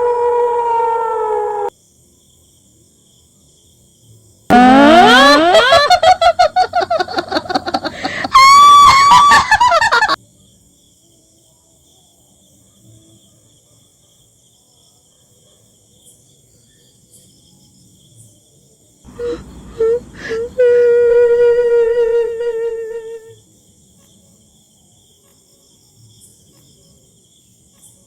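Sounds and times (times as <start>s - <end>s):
wavering honk-like wail: 0.0s - 1.7s, 4.5s - 10.2s
pulsing pitched tone: 4.5s - 5.8s.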